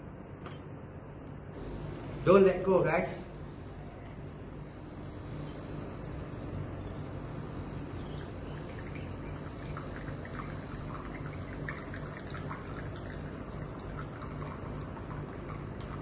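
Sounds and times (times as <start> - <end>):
coffee machine pump hum: 1.3 - 16.0
water pouring and splashing: 8.2 - 16.0.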